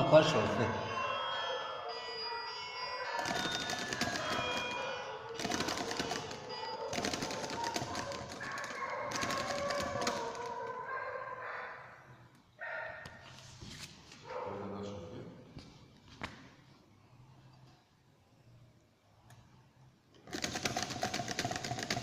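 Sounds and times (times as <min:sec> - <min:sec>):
rapid mechanical clicking clatter: 0:03.2 - 0:04.7, 0:05.4 - 0:10.6, 0:20.2 - 0:22.0.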